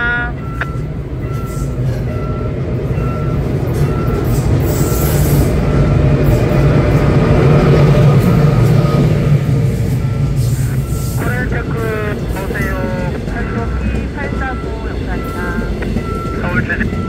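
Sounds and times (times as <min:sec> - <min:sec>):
crossing warning bell: 0:00.0 - 0:17.0
train rumbling: 0:00.0 - 0:17.0.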